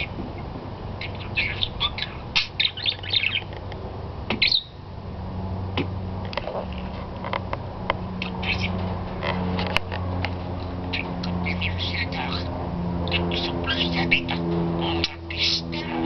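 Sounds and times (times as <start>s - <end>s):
steady low hum: 0.0s - 16.0s
budgerigar chirping and squawking: 1.0s - 3.5s, 4.4s - 4.8s, 8.2s - 8.8s, 10.9s - 16.0s.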